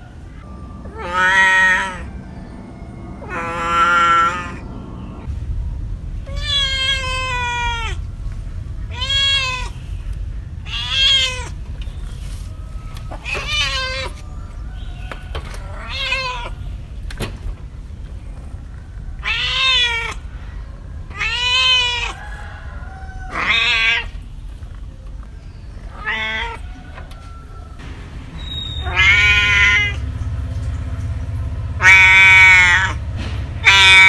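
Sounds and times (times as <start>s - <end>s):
steady low hum: 0.0s - 34.0s
cat meowing: 0.5s - 2.2s, 3.2s - 4.7s, 6.3s - 8.1s, 8.8s - 9.8s, 10.6s - 11.6s, 13.0s - 16.7s, 19.1s - 20.3s, 21.1s - 24.4s, 25.7s - 27.8s, 28.4s - 30.0s, 31.8s - 33.0s, 33.6s - 34.0s.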